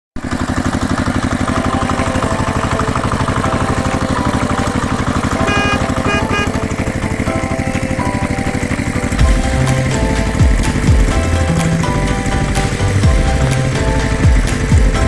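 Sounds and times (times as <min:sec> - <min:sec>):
cartoon truck engine idling: 0:00.2 - 0:15.0
background music: 0:01.3 - 0:15.0
short high beeps: 0:05.4 - 0:06.7.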